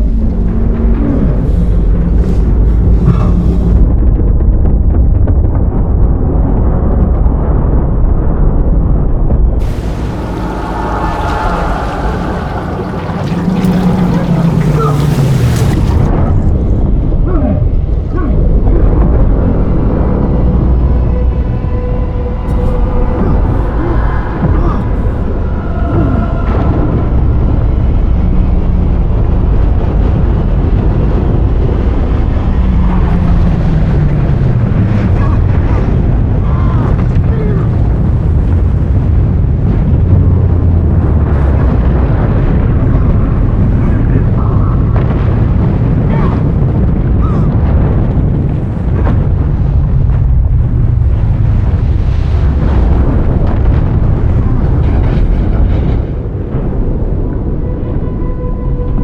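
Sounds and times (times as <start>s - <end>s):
low rumble: 0.0s - 59.0s
wind noise: 0.0s - 59.0s
vehicle engine rumbling: 9.6s - 16.6s.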